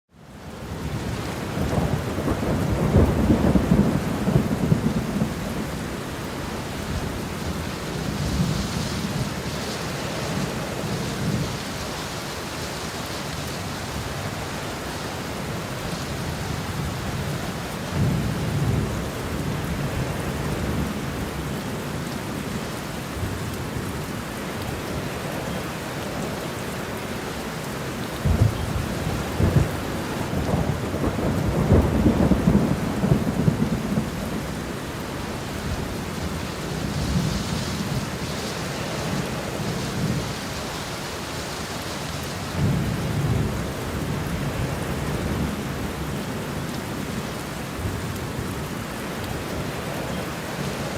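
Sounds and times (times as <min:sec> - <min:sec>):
steady rain hiss: 0:00.2 - 0:50.9
thunder rumbling: 0:00.8 - 0:11.8, 0:28.1 - 0:40.6, 0:42.4 - 0:46.3.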